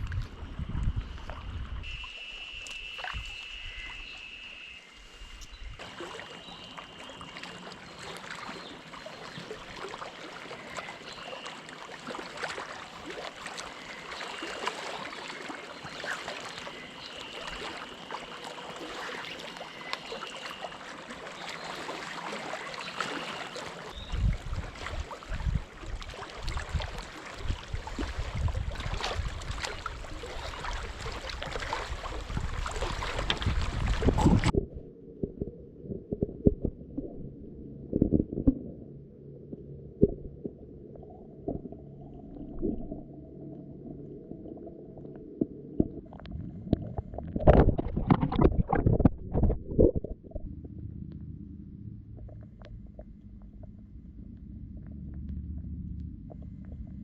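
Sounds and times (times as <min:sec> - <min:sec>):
wind gusts on microphone: 0:00.0 - 0:02.0, 0:24.0 - 0:30.2, 0:30.8 - 0:34.6, 0:46.3 - 0:50.5
water lapping and splashing: 0:00.0 - 0:38.8, 0:39.4 - 0:50.7
cicadas calling: 0:01.8 - 0:11.8, 0:12.7 - 0:24.1.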